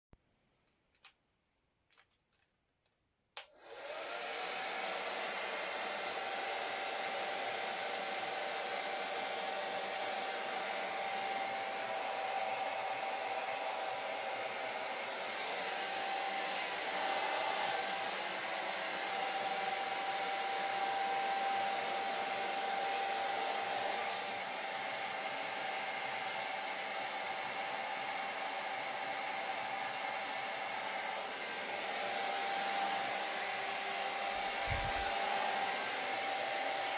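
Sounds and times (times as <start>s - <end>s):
hair dryer switch click: 3.4s - 3.6s
hair dryer motor whine: 3.4s - 36.9s.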